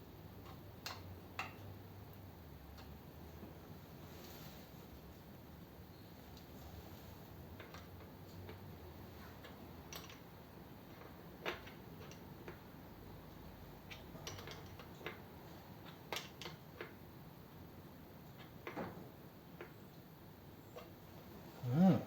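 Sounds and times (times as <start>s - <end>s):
light clicks and taps on fittings: 0.4s - 3.5s, 7.5s - 8.8s, 9.4s - 17.0s.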